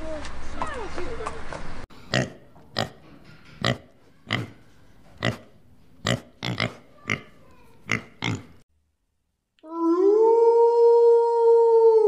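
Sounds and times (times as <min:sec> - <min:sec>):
pigs grunting: 0:02.0 - 0:03.0, 0:03.6 - 0:08.6.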